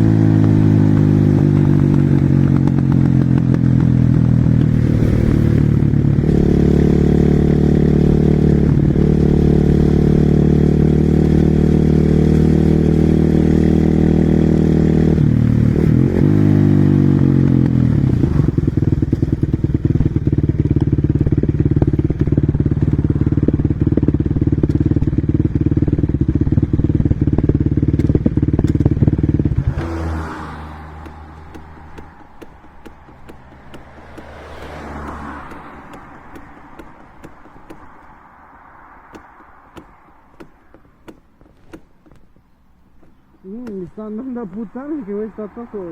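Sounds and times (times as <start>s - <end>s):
motorcycle engine running: 0.0s - 45.9s.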